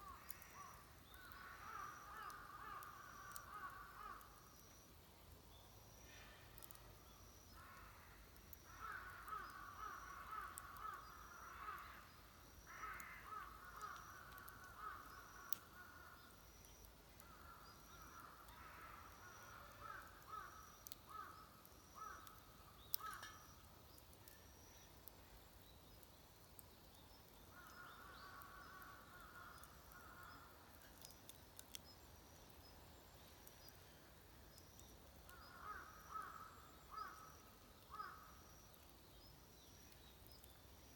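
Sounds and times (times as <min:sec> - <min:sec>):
distant crows cawing: 0:00.0 - 0:04.4, 0:07.6 - 0:16.4, 0:17.2 - 0:23.6, 0:27.5 - 0:31.1, 0:35.3 - 0:38.8
faint clicks: 0:00.2 - 0:04.3, 0:06.5 - 0:06.9, 0:12.6 - 0:18.7, 0:19.8 - 0:25.2, 0:25.9 - 0:33.8, 0:34.5 - 0:39.0.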